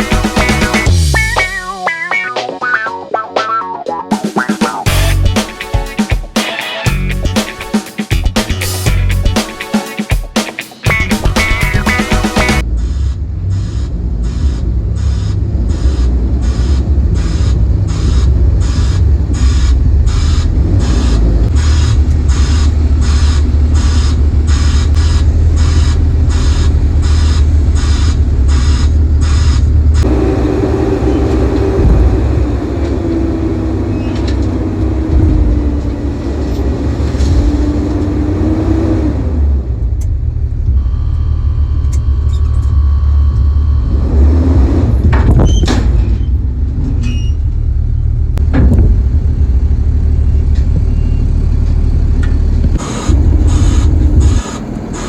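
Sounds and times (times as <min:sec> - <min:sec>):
excavator diesel engine rumbling: 0:00.0 - 0:01.7, 0:04.8 - 0:05.4, 0:10.8 - 0:55.0
wavering hydraulic whine: 0:15.8 - 0:37.4, 0:49.4 - 0:55.0.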